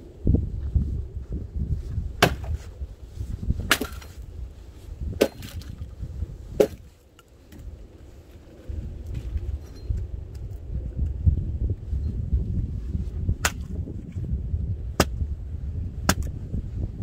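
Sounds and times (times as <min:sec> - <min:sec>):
wood being chopped: 0:02.2 - 0:02.6, 0:03.7 - 0:04.2, 0:05.2 - 0:05.7, 0:06.6 - 0:06.8, 0:13.4 - 0:13.8, 0:15.0 - 0:15.2, 0:16.1 - 0:16.3.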